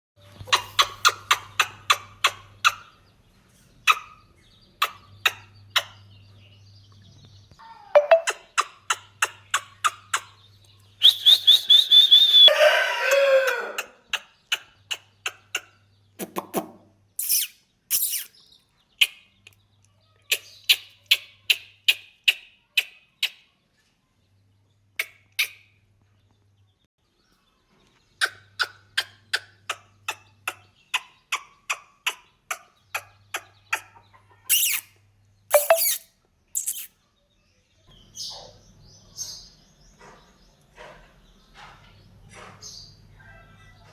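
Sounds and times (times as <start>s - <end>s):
parrot chirping: 8.0s - 8.6s, 17.2s - 18.4s, 34.5s - 34.9s, 35.5s - 36.9s
parrot squawk: 34.5s - 34.9s, 35.5s - 36.0s, 36.6s - 36.9s.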